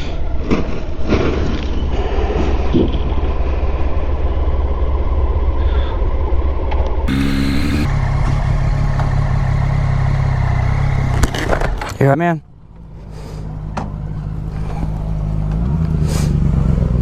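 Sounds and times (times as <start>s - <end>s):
road noise: 2.0s - 17.0s
motorcycle engine running: 7.1s - 11.8s.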